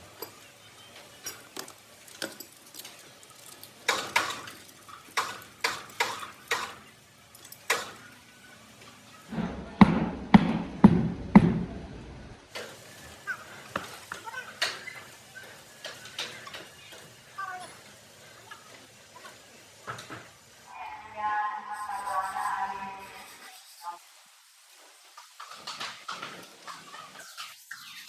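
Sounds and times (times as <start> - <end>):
metal knocks and clanks: 9.3 - 12.0
heavy hammer strikes: 9.3 - 12.2.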